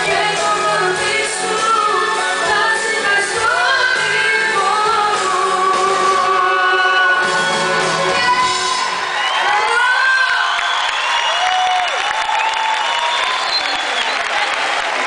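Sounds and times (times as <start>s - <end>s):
voices singing along: 0.0s - 8.9s
woman singing: 0.0s - 9.0s
live pop band: 0.0s - 10.6s.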